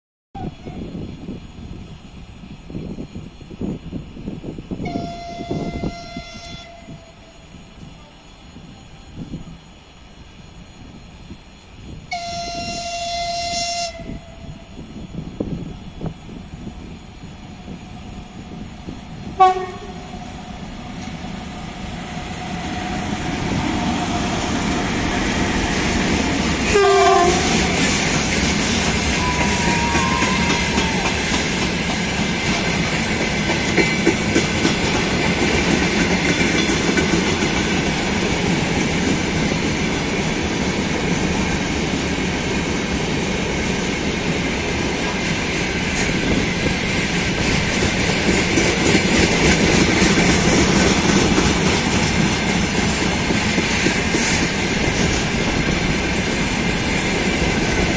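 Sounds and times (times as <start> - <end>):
freight train rolling on rails: 0.4 - 57.9
locomotive horn blasts: 4.8 - 7.0, 12.1 - 14.4, 19.4 - 20.1, 26.6 - 27.8
wheels clicking over rail joints: 24.6 - 40.0, 44.6 - 57.9.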